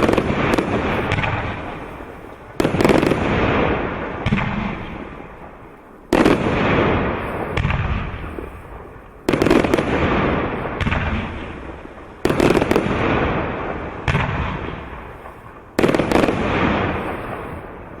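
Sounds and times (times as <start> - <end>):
firework crackle: 0.0 - 18.0.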